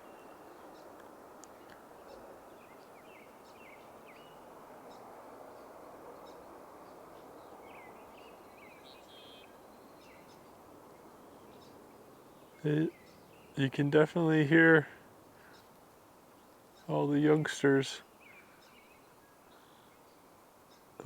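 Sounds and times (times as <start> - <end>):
low background rush: 9.6 - 18.0
young birds calling: 12.5 - 15.7, 16.3 - 19.0.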